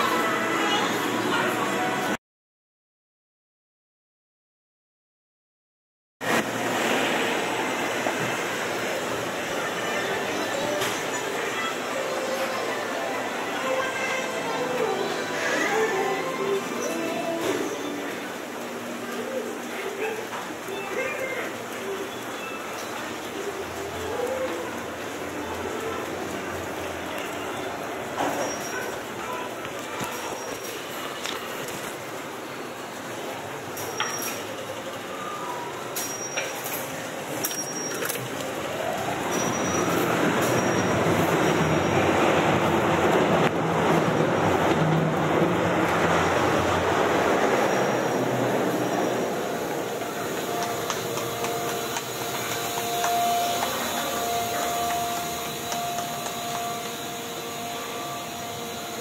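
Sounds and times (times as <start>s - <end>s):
mechanical hum: 6.2s - 59.0s
station platform rumble: 6.2s - 59.0s
train electric whine: 45.6s - 59.0s.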